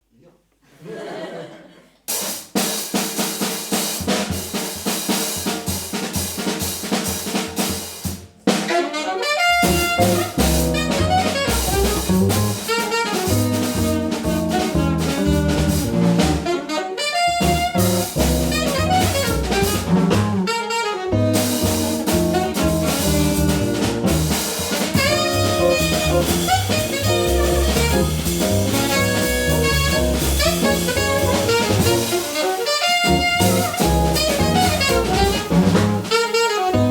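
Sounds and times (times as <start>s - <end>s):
drum kit: 2.1s - 36.9s
saxophone: 8.6s - 36.9s
bass: 9.4s - 36.9s.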